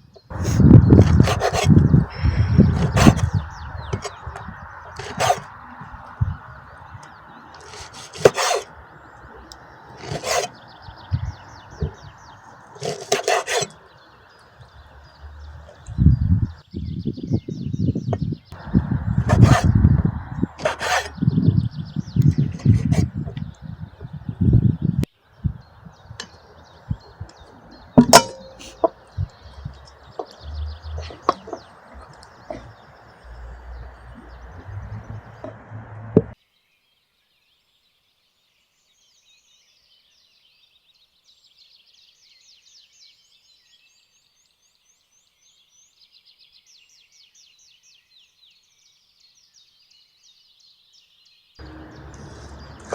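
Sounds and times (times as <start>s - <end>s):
birds chirping: 0.0s - 36.4s, 46.8s - 52.9s
rasping scraping strokes: 0.3s - 6.1s, 7.5s - 8.8s, 9.9s - 13.9s, 18.6s - 21.6s, 22.2s - 23.6s, 26.2s - 36.4s, 51.6s - 52.9s
knocks and clinks of food preparation: 28.0s - 29.0s.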